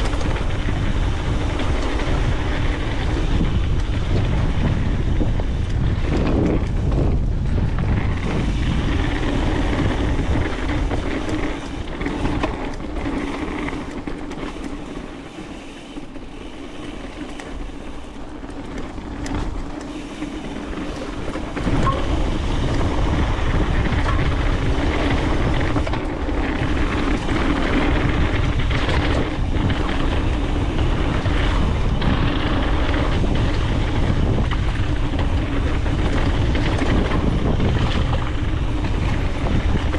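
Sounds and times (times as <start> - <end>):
bike knocks and rattles: 0.0 - 39.9
tyres rolling over dirt: 0.0 - 39.9
wind on microphone: 0.0 - 39.9.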